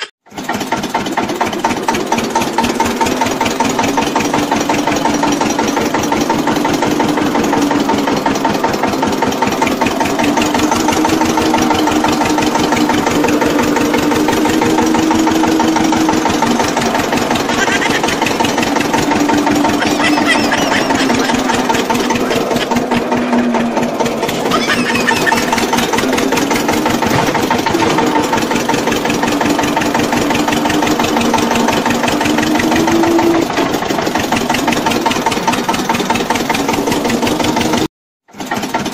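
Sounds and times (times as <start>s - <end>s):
mini tractor engine running: 0.0s - 38.9s.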